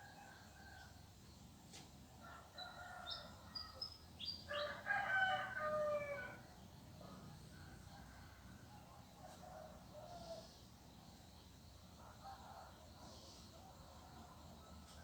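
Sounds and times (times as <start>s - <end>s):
rooster crowing: 4.5s - 6.4s.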